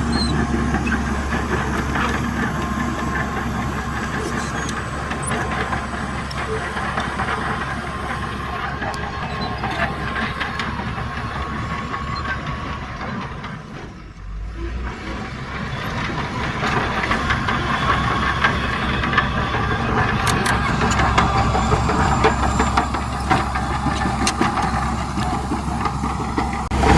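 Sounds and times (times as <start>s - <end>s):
diesel earthmoving machinery running: 0.0s - 26.9s.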